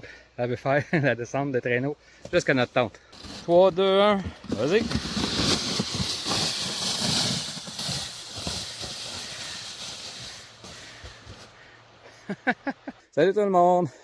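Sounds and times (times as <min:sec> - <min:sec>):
sled hissing on snow: 0:03.2 - 0:03.8, 0:04.5 - 0:11.7.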